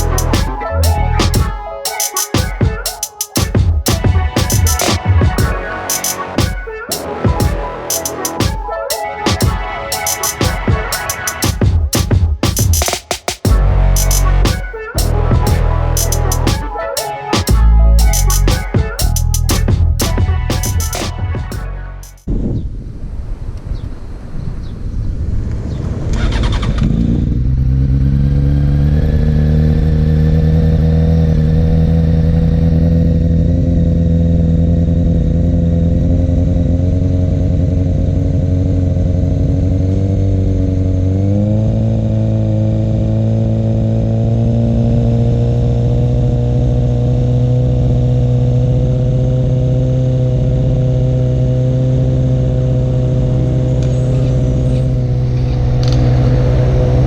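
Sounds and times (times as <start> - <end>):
motorcycle engine starting and idling: 26.2 - 44.1.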